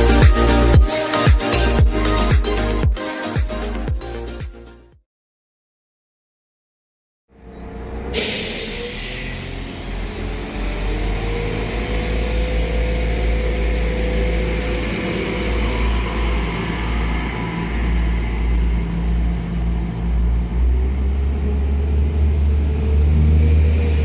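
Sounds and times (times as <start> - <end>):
diesel train engine humming: 7.4 - 24.0.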